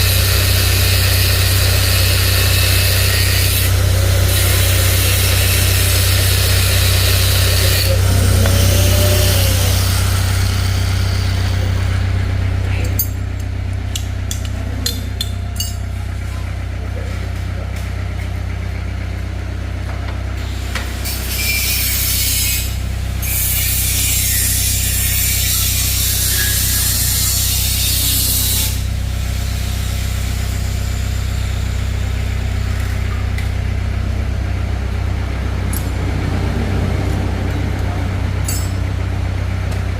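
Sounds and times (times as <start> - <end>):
power tool or air hiss: 0.0 - 11.6, 20.4 - 31.7
low machine hum: 0.0 - 39.9.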